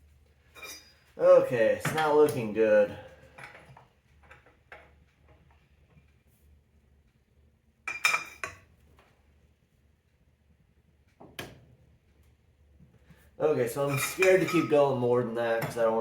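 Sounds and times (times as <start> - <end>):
steel hand tools clanking: 0.6 - 2.6, 13.6 - 16.0.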